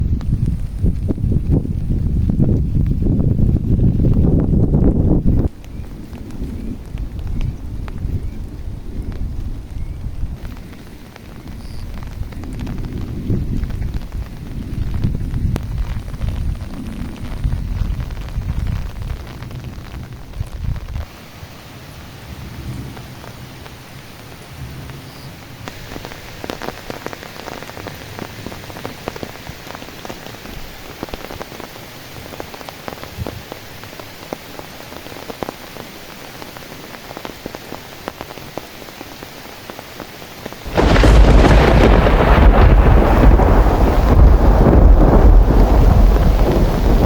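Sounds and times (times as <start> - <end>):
steady rain pattering: 0.0 - 47.0
deep thunder: 40.6 - 47.0.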